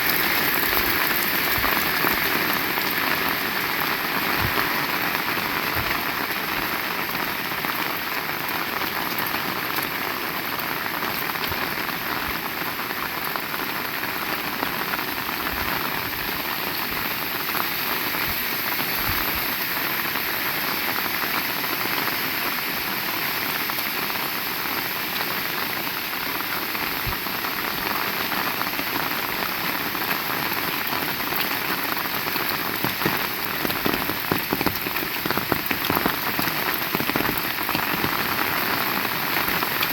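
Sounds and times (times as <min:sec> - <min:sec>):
heavy rain falling: 0:00.0 - 0:39.9
sharp raindrop impacts: 0:30.7 - 0:39.9.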